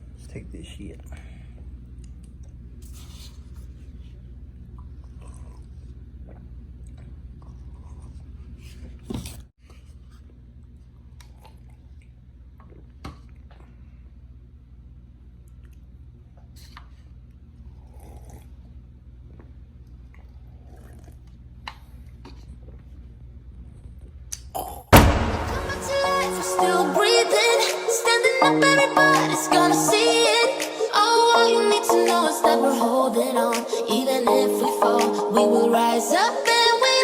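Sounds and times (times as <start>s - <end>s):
short loud noise: 25.0s - 29.6s.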